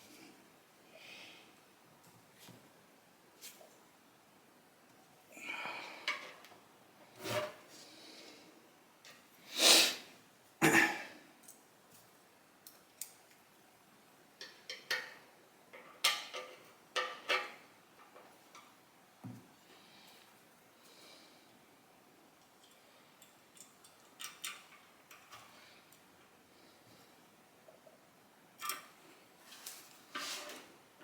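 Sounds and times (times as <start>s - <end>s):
breathy blows or sniffs: 9.5s - 10.1s
small metal parts clicking and scraping: 22.5s - 26.0s.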